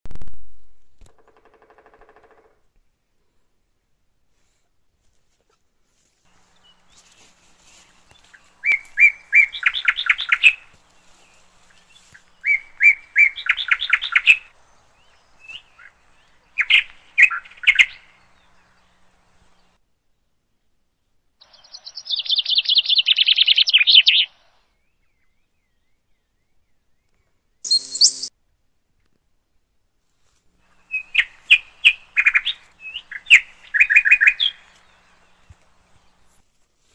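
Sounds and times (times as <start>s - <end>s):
bird calling with fast trill: 8.2s - 18.5s, 21.4s - 24.4s, 27.6s - 28.3s, 30.8s - 35.1s.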